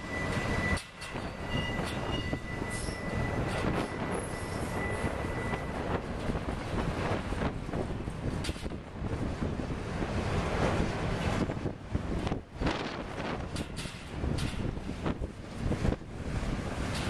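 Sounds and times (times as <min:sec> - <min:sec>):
high flange squeal: 0:00.0 - 0:05.9
train wheels and couplers clattering: 0:00.0 - 0:09.0, 0:09.9 - 0:17.0
wind buffeting microphone: 0:00.0 - 0:17.0.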